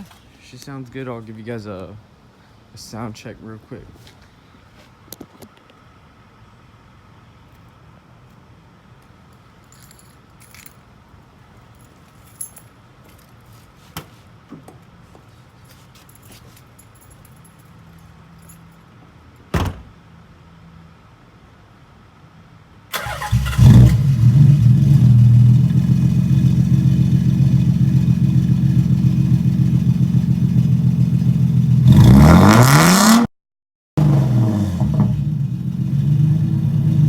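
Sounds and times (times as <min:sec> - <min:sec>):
car engine cranking and idling: 0:22.9 - 0:32.3, 0:34.0 - 0:37.0
car engine revving: 0:23.0 - 0:33.3, 0:34.0 - 0:37.0.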